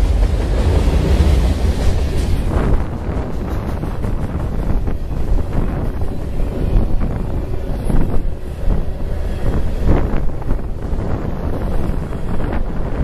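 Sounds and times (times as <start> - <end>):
freight train cars rolling past: 0.0 - 13.0
wind noise on microphone: 0.0 - 13.0.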